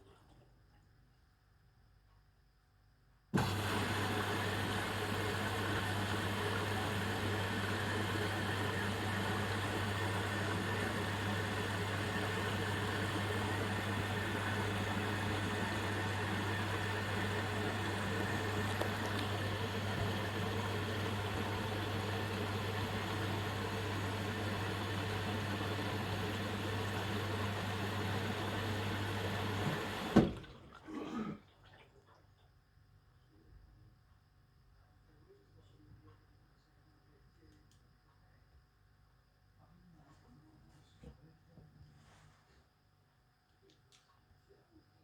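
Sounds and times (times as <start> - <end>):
washing machine humming: 3.3 - 32.2
thump: 30.1 - 30.4.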